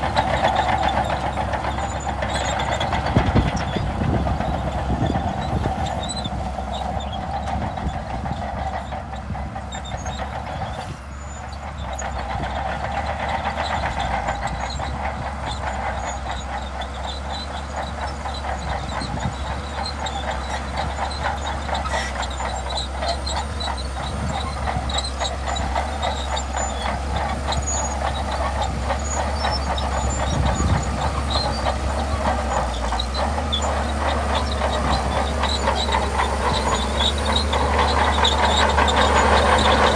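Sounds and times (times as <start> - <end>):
fast track clatter: 0.0 - 11.0, 11.6 - 39.9
bulldozer engine running: 0.0 - 39.9.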